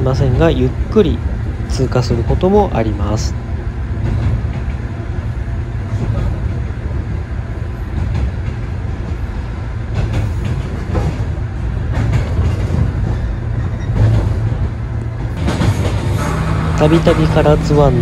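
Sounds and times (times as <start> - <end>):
train rumble from on board: 0.0 - 18.0
wheels knocking on rails: 9.9 - 18.0.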